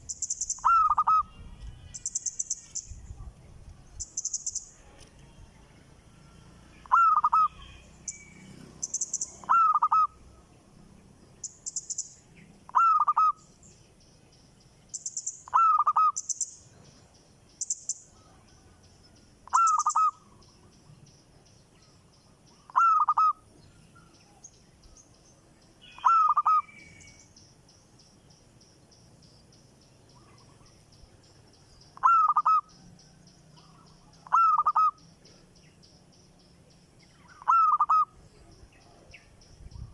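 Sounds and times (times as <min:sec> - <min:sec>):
bird calling loudly: 0:00.0 - 0:01.4, 0:06.8 - 0:10.2, 0:11.4 - 0:13.5, 0:15.0 - 0:16.6, 0:19.5 - 0:20.2, 0:22.6 - 0:23.5, 0:25.8 - 0:27.2, 0:32.0 - 0:32.7, 0:34.2 - 0:35.0, 0:37.2 - 0:38.2
thin high chirps: 0:04.0 - 0:04.8.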